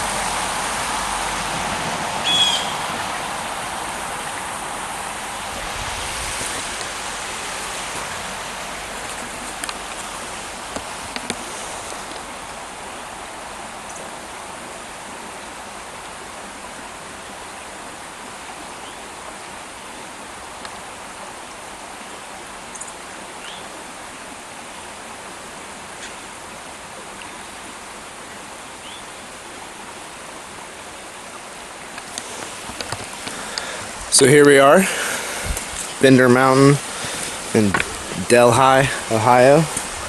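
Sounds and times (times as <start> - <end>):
creek water flowing: 0.0 - 40.0
faint ticks: 32.0 - 33.9.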